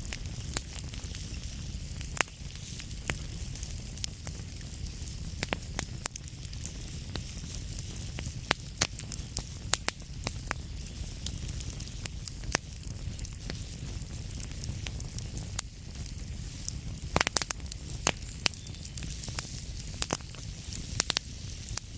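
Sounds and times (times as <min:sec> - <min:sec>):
low rumble and hiss of flames: 0:00.0 - 0:21.9
wood fire crackling and popping: 0:00.0 - 0:21.9.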